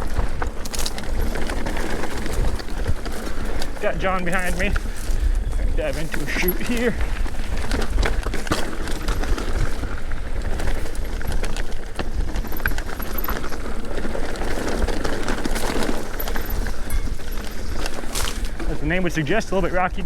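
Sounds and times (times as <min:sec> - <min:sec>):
bike knocks and rattles: 0:00.0 - 0:19.9
bike tyres crunching over rocks: 0:00.0 - 0:20.0
wind rumble on microphone: 0:00.0 - 0:20.0.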